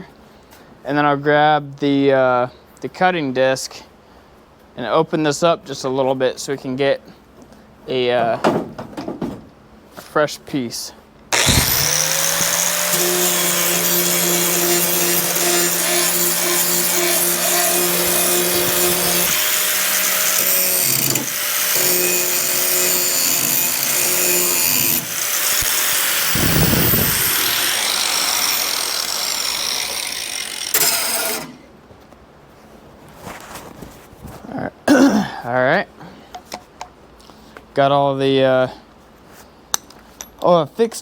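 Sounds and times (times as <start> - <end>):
angle grinder grinding metal: 11.3 - 31.6.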